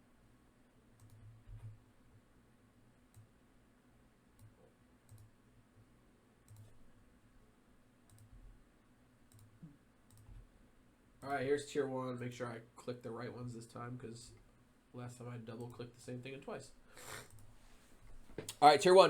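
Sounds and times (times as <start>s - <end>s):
computer mouse clicks: 1.0s - 1.8s, 3.1s - 3.3s, 4.4s - 5.3s, 6.5s - 6.8s, 8.1s - 8.4s, 9.3s - 10.5s, 15.6s - 15.8s, 17.2s - 17.5s.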